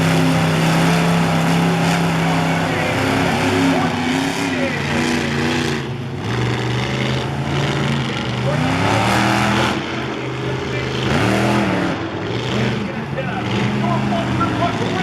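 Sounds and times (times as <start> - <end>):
vehicle engine running: 0.0 - 15.0
people talking: 1.9 - 5.6, 9.6 - 11.9, 12.5 - 15.0.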